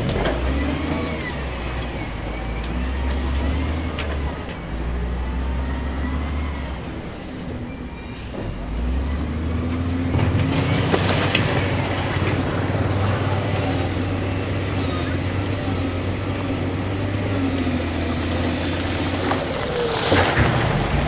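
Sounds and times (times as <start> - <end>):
bulldozer diesel engine drone: 0.0 - 21.0
steel tracks squealing and clanking: 0.0 - 21.0.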